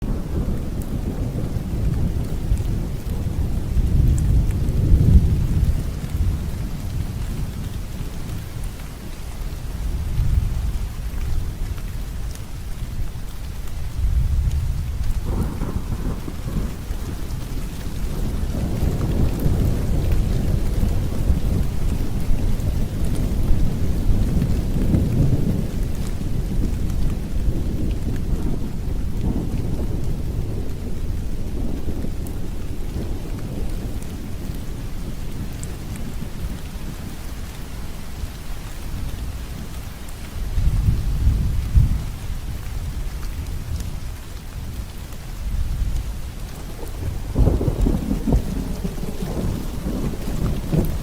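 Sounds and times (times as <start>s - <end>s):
steady rain: 0.0s - 51.0s
distant thunder rumbling: 13.9s - 37.6s, 45.4s - 51.0s.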